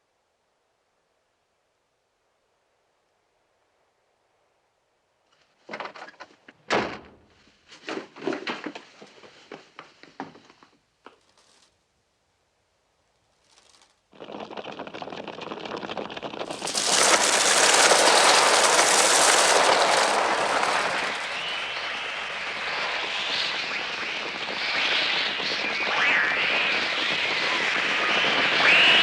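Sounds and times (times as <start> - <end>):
fluttering bird wings: 13.4 - 22.5.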